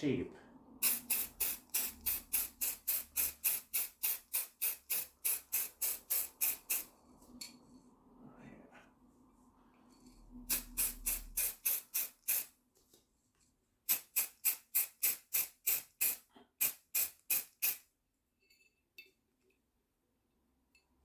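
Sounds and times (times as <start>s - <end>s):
spray can rattling: 0.8s - 6.9s, 10.5s - 12.5s, 13.9s - 17.8s.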